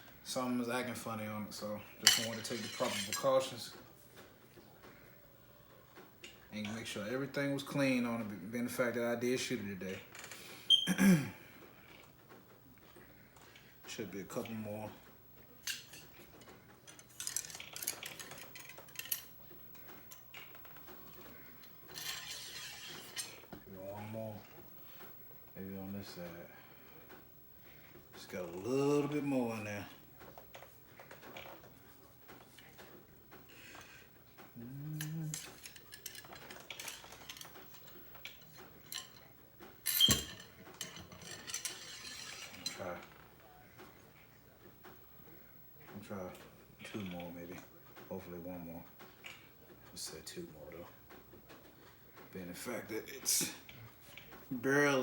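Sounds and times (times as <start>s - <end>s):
metal cleaning rod clinking: 2.0s - 3.5s, 35.0s - 42.8s
cleaning rod scraping in barrel: 21.9s - 23.5s, 39.9s - 43.0s.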